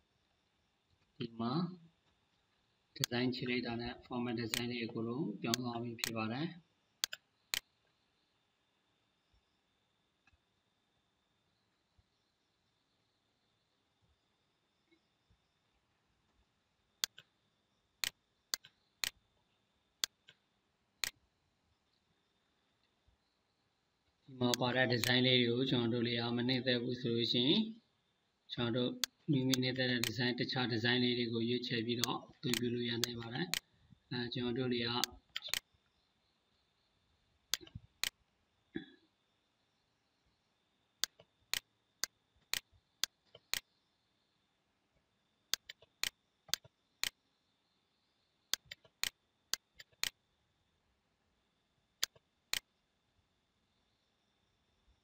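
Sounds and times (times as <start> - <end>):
faint high-pitched whine: 0.0 - 55.0
computer mouse button clicking: 7.0 - 7.7, 17.0 - 17.3, 35.0 - 35.6, 45.5 - 47.2, 48.5 - 50.1
mouse button clicks: 35.0 - 35.6
person clearing throat: 38.8 - 39.1.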